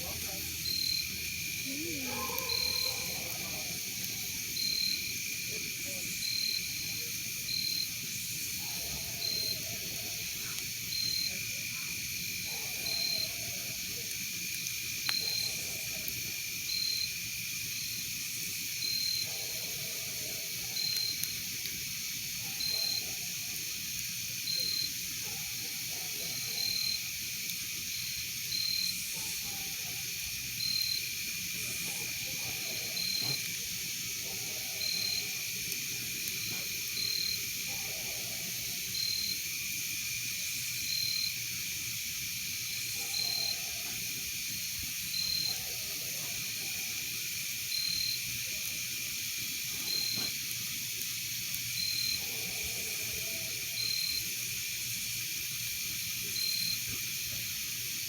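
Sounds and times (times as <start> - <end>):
insect chorus drone: 0.0 - 58.0
insect short chirp: 0.6 - 5.3, 27.9 - 34.1, 49.5 - 52.2, 53.1 - 55.4.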